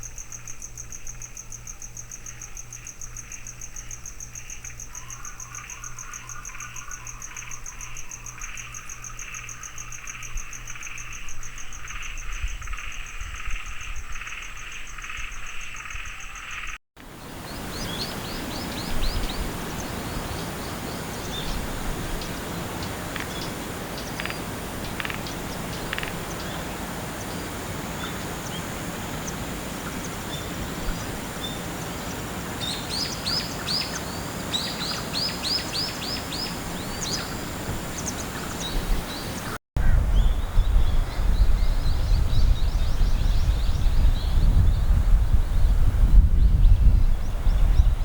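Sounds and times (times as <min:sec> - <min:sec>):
outdoor background noise: 0:00.0 - 0:48.0
insect pulsing trill: 0:17.4 - 0:39.6.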